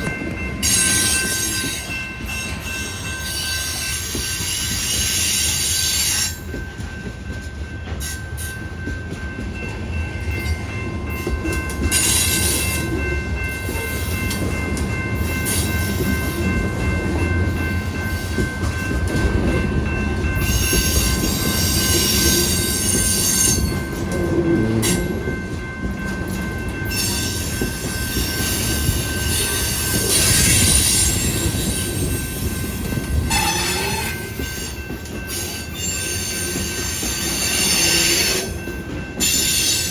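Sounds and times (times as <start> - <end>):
train rumbling: 0.0 - 39.9
wheel squeal: 33.3 - 34.6.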